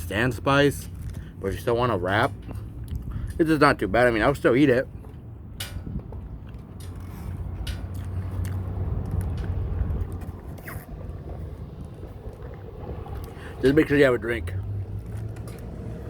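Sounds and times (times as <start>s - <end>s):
low vehicle rumble: 0.0s - 16.0s
person biting and chewing food: 6.4s - 11.1s.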